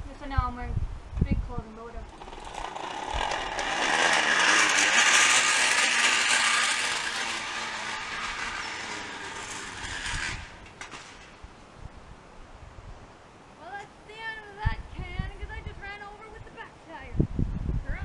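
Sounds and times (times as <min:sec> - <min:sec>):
can buzzing on bicycle spokes: 0:02.0 - 0:11.4.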